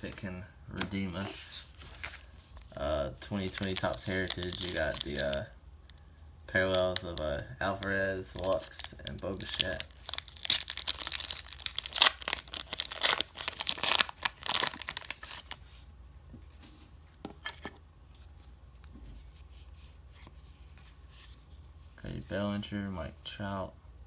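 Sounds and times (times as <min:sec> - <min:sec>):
wrapper tearing and crinkling: 0:03.3 - 0:05.4, 0:06.7 - 0:15.6.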